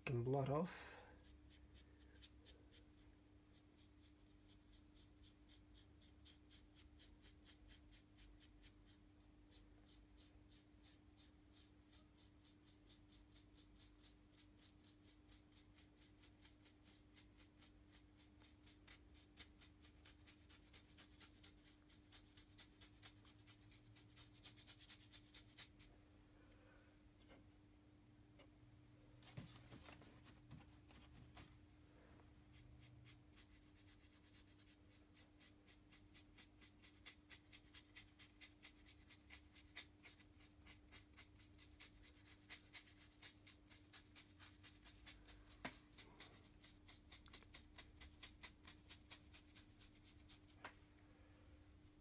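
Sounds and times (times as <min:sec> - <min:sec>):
brush scratching paint on foam: 0:00.3 - 0:25.9, 0:29.3 - 0:31.6, 0:32.5 - 0:50.7.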